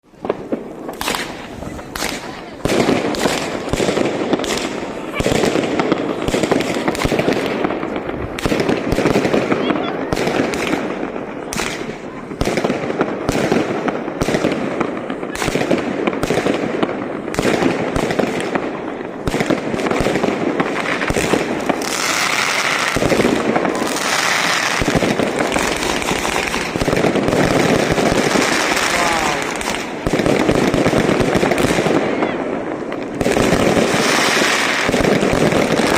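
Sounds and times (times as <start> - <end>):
dense fireworks crackling: 0.0 - 35.9
fireworks bangs: 0.0 - 35.9.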